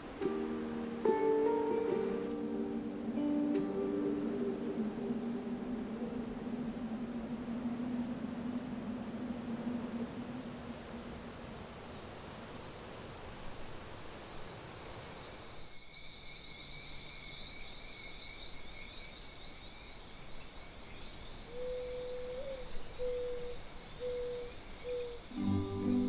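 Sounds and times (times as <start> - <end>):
music: 0.0 - 5.7, 25.4 - 26.0
low hoot-like notes: 0.0 - 11.3, 21.5 - 26.0.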